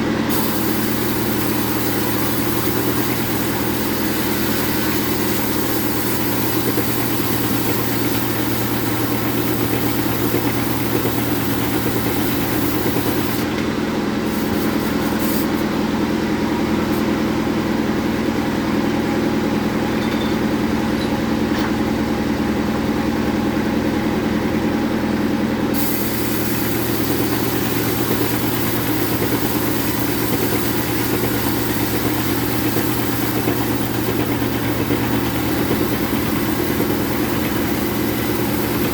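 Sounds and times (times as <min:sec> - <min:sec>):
sawmill machine hum: 0:00.0 - 0:38.9
high saw hiss: 0:00.3 - 0:13.5, 0:25.8 - 0:38.9.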